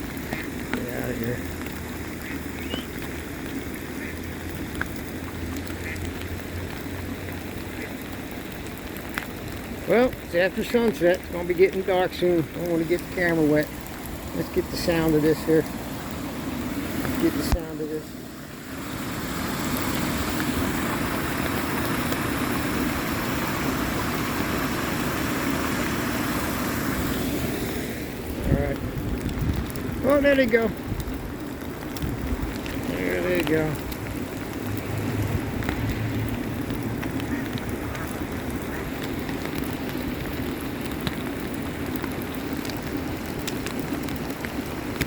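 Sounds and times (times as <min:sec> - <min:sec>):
floodwater rushing in creek: 0:00.0 - 0:45.0.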